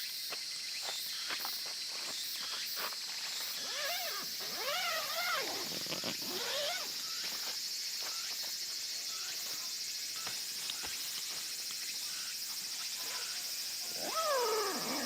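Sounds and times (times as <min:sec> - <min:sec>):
high insect chirring: 0:00.6 - 0:15.0
animal crying: 0:14.0 - 0:15.0.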